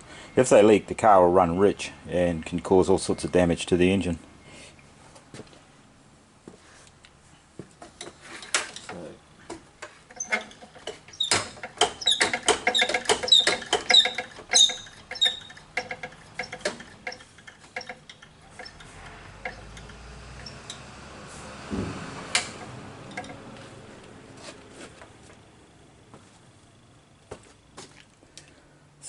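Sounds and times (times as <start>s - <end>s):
sharp clicks and rattles: 9.8s - 20.9s, 22.3s - 23.4s
short high squeaks: 10.1s - 20.8s.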